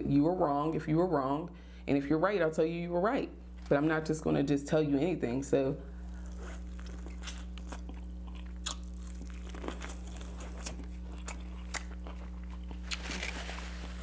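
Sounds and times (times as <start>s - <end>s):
steady low hum: 0.0s - 14.0s
sharp crunches of kernels: 6.0s - 13.4s
biting and chewing corn: 6.0s - 14.0s.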